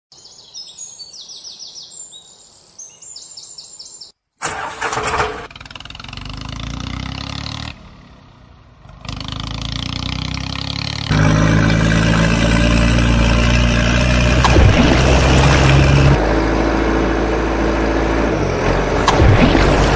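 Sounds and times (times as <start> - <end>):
birds chirping: 0.1 - 4.2
engine starting and running: 4.4 - 9.6, 11.1 - 19.9.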